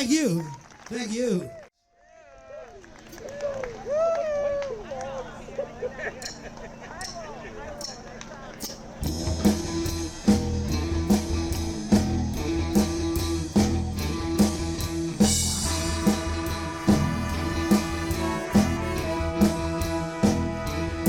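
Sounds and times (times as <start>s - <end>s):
bass and electric guitar: 9.0s - 21.0s
drum kit beat: 9.0s - 21.0s.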